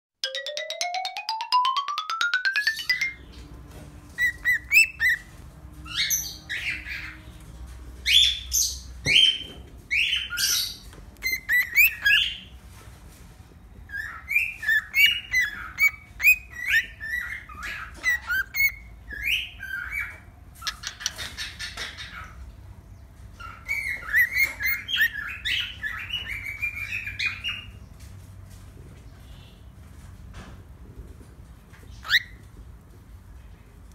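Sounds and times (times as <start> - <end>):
cockatiel chirping and squawking: 4.2 - 5.3, 5.9 - 7.2, 8.2 - 12.4, 13.9 - 22.4, 23.4 - 27.7, 32.0 - 32.4.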